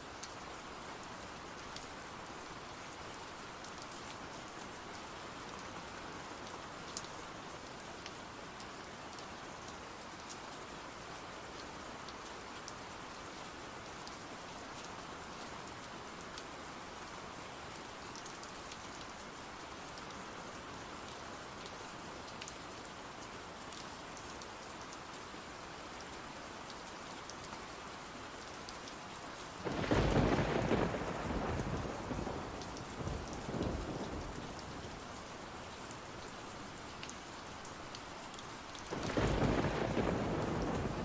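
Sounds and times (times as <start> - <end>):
steady rain falling: 0.0 - 41.0
thunder rolling: 29.7 - 32.5, 38.9 - 41.0.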